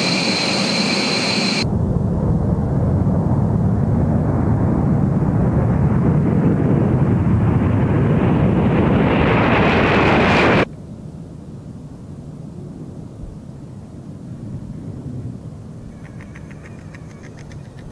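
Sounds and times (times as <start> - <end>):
jet engines roaring: 0.0 - 10.7.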